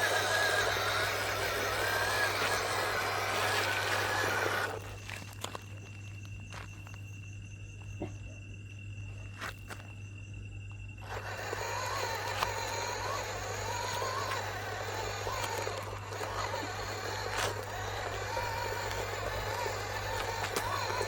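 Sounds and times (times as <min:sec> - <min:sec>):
toy motor whining: 0:00.0 - 0:05.6, 0:11.0 - 0:21.0
clicks: 0:11.1 - 0:21.0.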